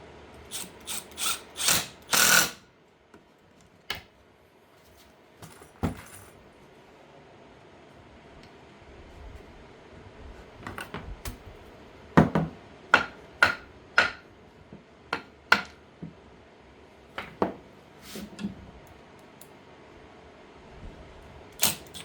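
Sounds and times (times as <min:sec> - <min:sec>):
tools and wood knocking on bench: 0:12.2 - 0:16.2, 0:17.2 - 0:17.6.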